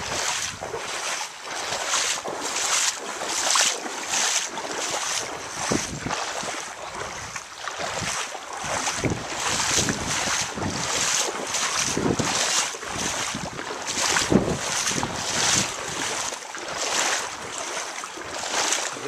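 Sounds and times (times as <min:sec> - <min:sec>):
wind noise on microphone: 0:00.0 - 0:01.0, 0:04.8 - 0:17.6
water splashing and sloshing: 0:00.0 - 0:19.0.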